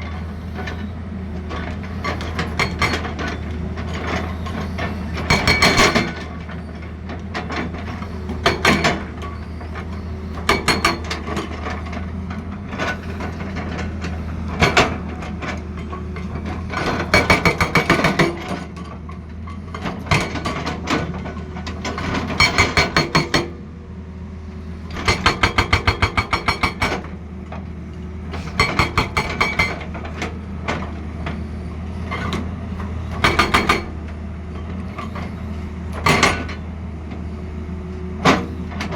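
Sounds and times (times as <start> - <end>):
hydraulic breaker hammering: 5.2 - 6.2, 17.0 - 18.5, 22.3 - 23.6, 25.0 - 27.1, 28.4 - 30.1, 33.2 - 34.0.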